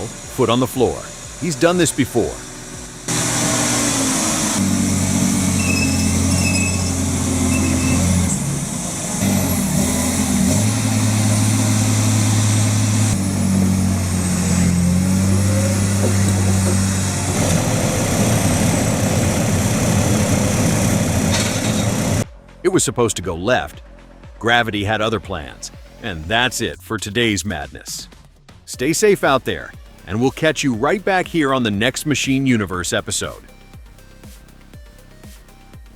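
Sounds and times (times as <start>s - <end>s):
heavy truck engine running: 0.0s - 22.6s.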